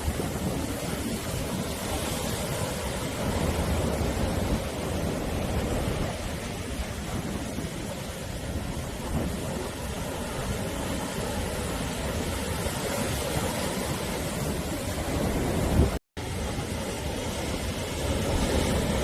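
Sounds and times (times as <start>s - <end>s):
sea waves breaking on shore: 0.0s - 19.0s
wind rumble on microphone: 0.0s - 19.0s.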